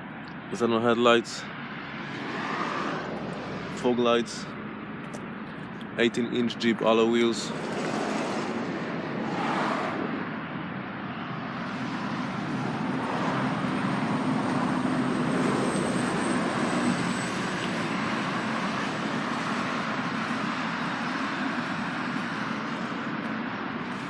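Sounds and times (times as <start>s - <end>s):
vehicle rushing rumble: 7.3s - 23.7s.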